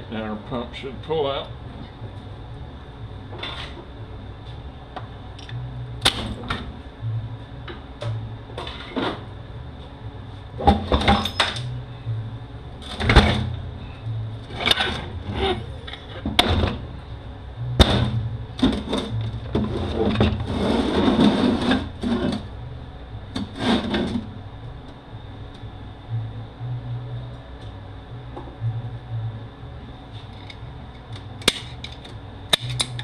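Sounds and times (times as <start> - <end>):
metal scraping: 18.0 - 22.5, 23.4 - 24.3.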